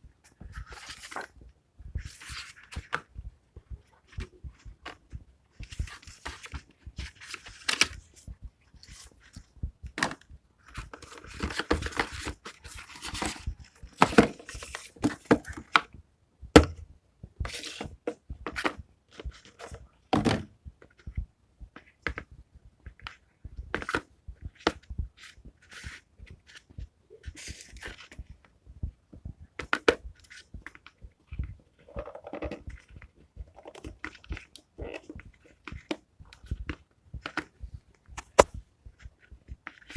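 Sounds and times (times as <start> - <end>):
package knocks and thuds: 13.1 - 15.8, 16.6 - 16.8, 20.1 - 20.5.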